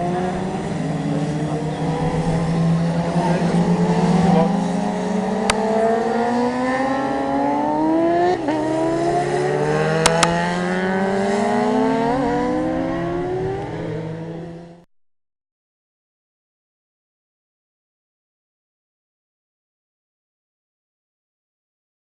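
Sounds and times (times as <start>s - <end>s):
motorcycle engine accelerating: 0.0s - 14.9s
sharp clicks: 10.0s - 10.4s.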